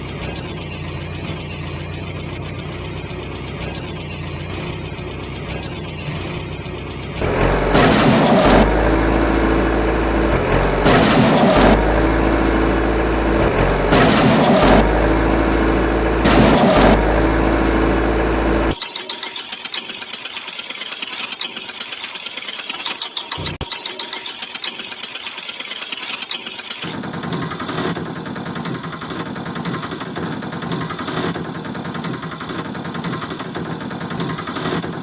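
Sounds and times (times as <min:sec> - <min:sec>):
low engine drone: 0:00.0 - 0:18.9
engine chugging: 0:00.0 - 0:35.0
engine surging: 0:00.0 - 0:35.0.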